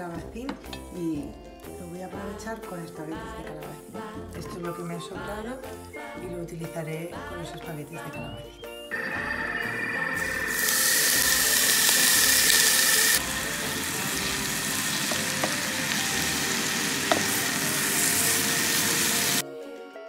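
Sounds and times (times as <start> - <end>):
vegetables sizzling in oil: 8.9 - 19.4
spatula knocking on pan: 17.0 - 17.4.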